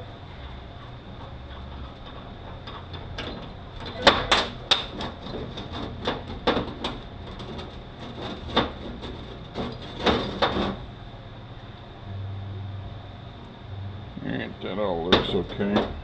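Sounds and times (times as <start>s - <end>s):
metal parts knocking and clinking: 1.9s - 10.8s.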